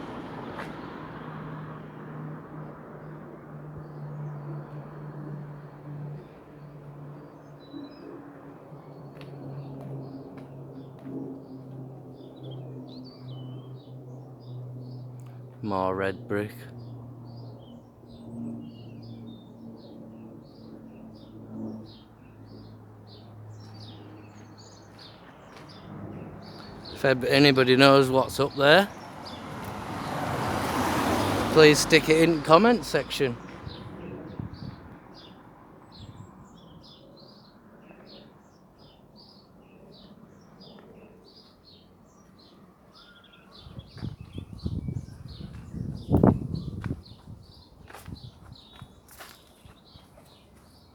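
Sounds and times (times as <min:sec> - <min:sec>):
small birds chirping: 0:12.1 - 0:15.8, 0:16.6 - 0:50.9.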